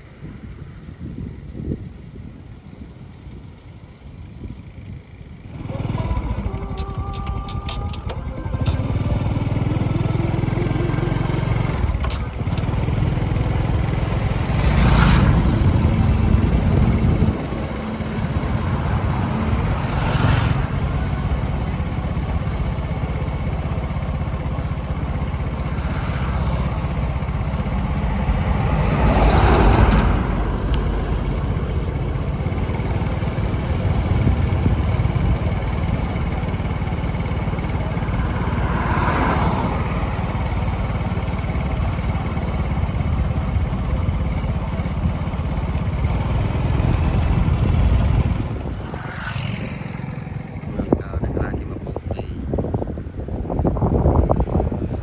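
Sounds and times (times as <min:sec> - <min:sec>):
small engine running: 0:01.0 - 0:55.0
rushes of noise: 0:23.2 - 0:42.1, 0:45.9 - 0:55.0.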